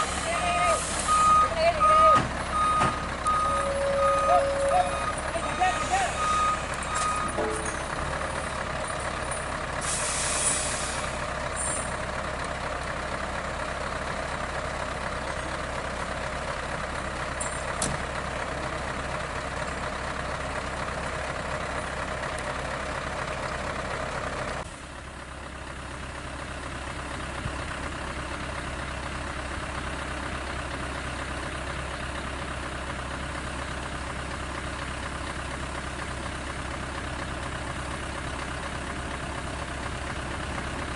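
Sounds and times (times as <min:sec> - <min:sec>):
air brakes hissing: 0:00.0 - 0:01.3, 0:09.8 - 0:11.9
diesel truck engine running: 0:00.0 - 0:40.9.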